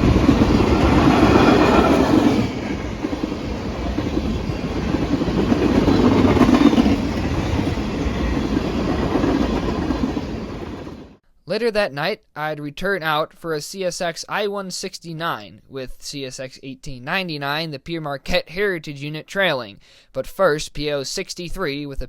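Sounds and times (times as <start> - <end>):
freight train rumbling past: 0.0 - 11.2
wheels clattering on rails: 0.0 - 11.2.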